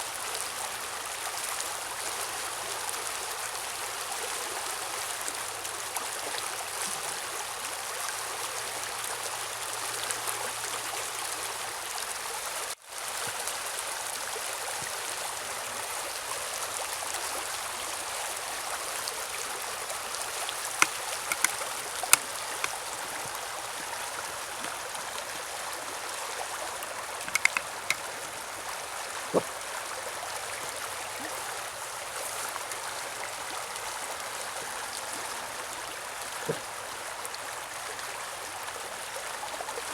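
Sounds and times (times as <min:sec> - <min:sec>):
river running over rocks: 0:19.0 - 0:34.6
sharp clicks: 0:20.8 - 0:22.8, 0:27.3 - 0:28.0.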